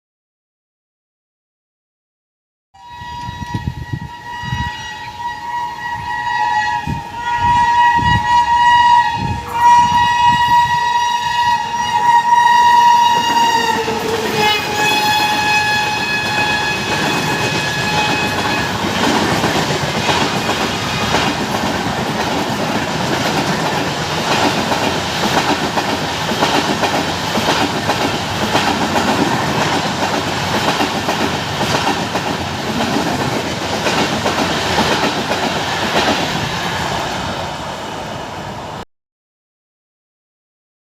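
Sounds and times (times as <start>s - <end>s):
locomotive horn blasts: 2.8s - 19.0s
train coaches rattling past: 3.2s - 38.8s.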